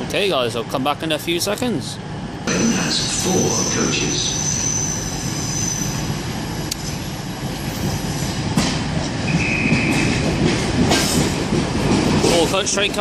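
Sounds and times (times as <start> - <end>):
train engine and wheels rumbling: 0.0 - 13.0
train clanks: 2.4 - 13.0
high wheel squeal: 3.2 - 6.6.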